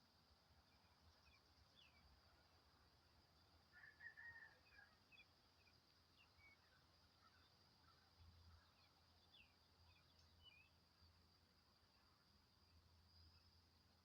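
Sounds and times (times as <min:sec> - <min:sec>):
faint bird chirps: 0:00.6 - 0:02.4, 0:03.7 - 0:11.2.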